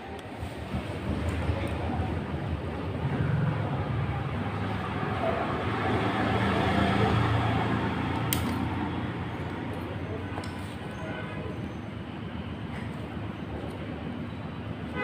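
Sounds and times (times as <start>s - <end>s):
sharp click: 8.3s - 8.7s.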